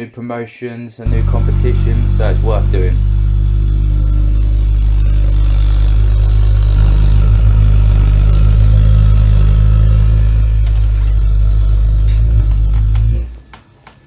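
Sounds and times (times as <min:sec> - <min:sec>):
gas boiler droning hum: 0:01.1 - 0:13.6.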